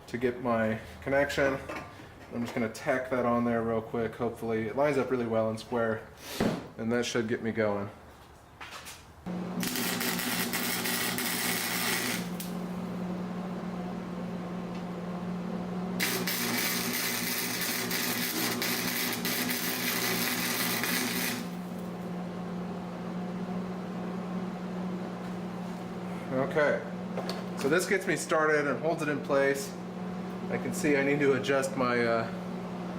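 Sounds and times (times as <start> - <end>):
welder humming: 9.3 - 32.9
welding arc crackling and hissing: 9.5 - 12.8, 16.0 - 21.9.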